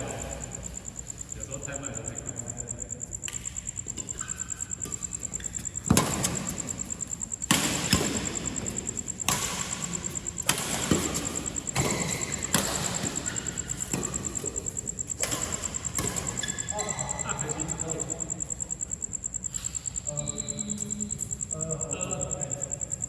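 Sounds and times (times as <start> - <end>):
high-pitched pulsing whine: 0.0 - 23.0
ball being struck: 11.8 - 13.1.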